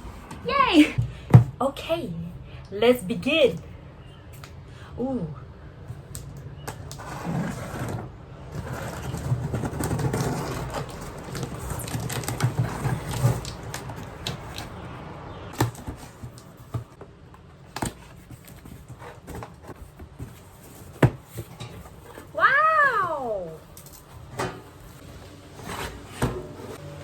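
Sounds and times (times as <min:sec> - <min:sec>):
cardboard packaging rustling: 0:07.0 - 0:22.4.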